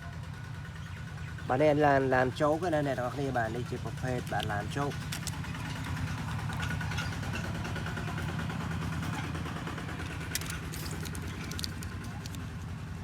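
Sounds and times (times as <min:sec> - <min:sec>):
light clicks: 0:04.2 - 0:07.2.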